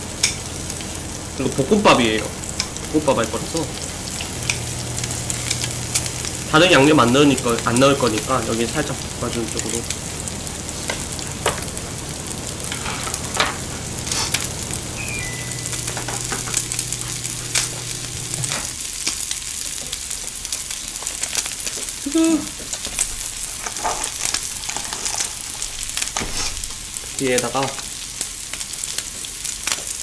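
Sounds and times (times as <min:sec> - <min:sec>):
meat sizzling on a grill pan: 0:00.0 - 0:30.0
low hum: 0:09.0 - 0:18.8.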